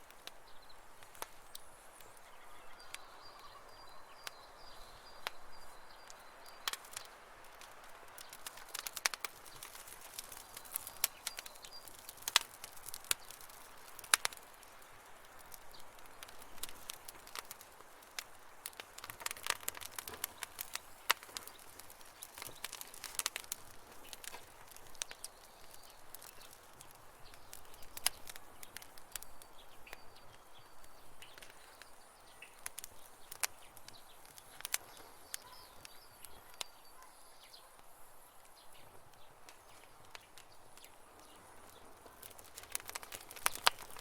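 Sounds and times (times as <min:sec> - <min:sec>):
campfire crackling and popping: 0:00.0 - 0:44.0
faint bird chirps: 0:00.5 - 0:07.2, 0:27.2 - 0:43.6.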